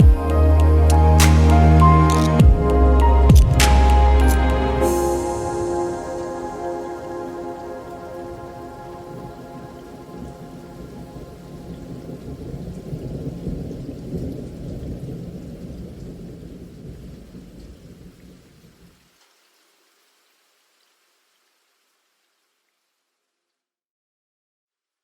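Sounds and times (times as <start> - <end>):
thunder rumbling: 0.0 - 18.8
rain: 0.0 - 23.4.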